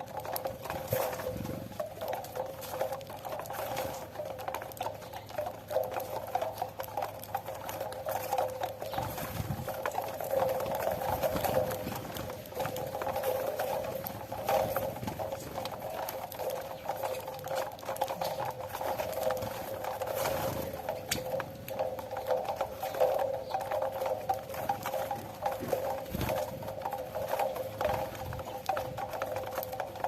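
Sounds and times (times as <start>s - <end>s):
birds pecking at grain: 0.0s - 30.0s.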